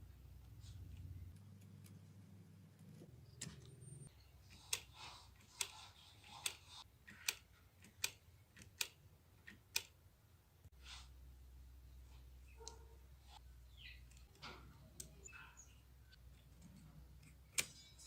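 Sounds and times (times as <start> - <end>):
sharp clicks: 6.4 - 10.0.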